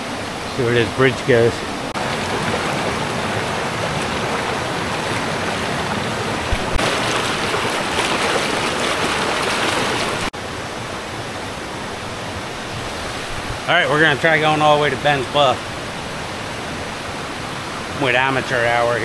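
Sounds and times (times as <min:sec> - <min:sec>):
waterfall rushing: 0:00.0 - 0:19.0
low bumps: 0:01.9 - 0:10.3.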